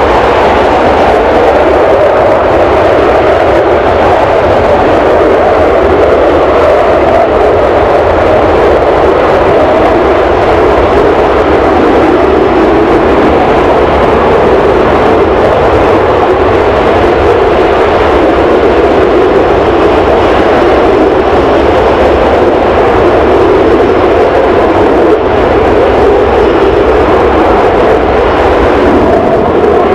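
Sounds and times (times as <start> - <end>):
jet engines running: 0.0 - 29.9.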